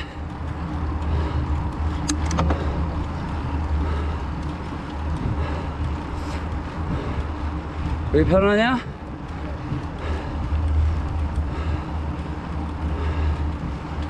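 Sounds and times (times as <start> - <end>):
mountain bike rumble: 0.0 - 14.0
sharp clicks: 0.7 - 5.2.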